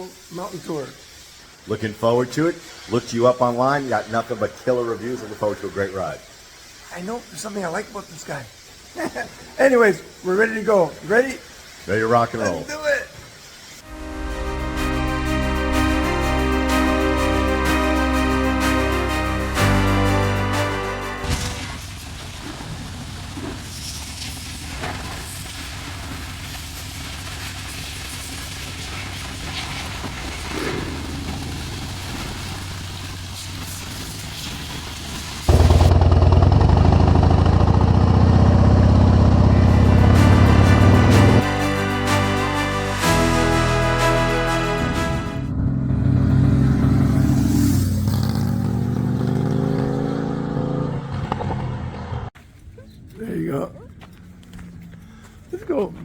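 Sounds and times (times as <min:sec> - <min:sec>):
even hiss: 0:00.0 - 0:35.9
motorcycle engine running: 0:35.5 - 0:41.4, 0:45.5 - 0:52.3.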